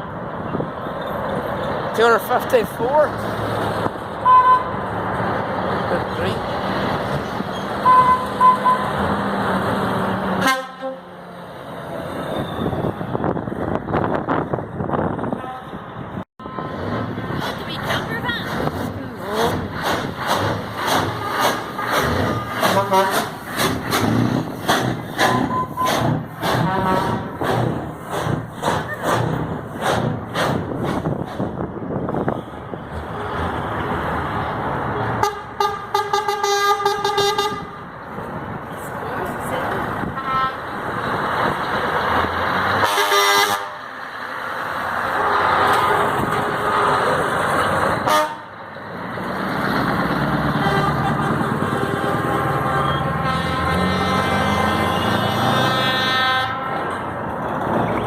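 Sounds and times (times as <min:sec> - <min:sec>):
road traffic rumbling: 0:00.0 - 0:58.0
trucks driving past: 0:00.0 - 0:58.0
truck horn toot: 0:04.2 - 0:04.8, 0:07.8 - 0:09.0, 0:10.4 - 0:11.3, 0:15.3 - 0:15.8, 0:16.4 - 0:16.8, 0:21.1 - 0:23.4, 0:26.6 - 0:27.4, 0:35.2 - 0:37.8, 0:40.0 - 0:40.7, 0:42.8 - 0:43.8, 0:48.0 - 0:48.6, 0:50.4 - 0:56.9.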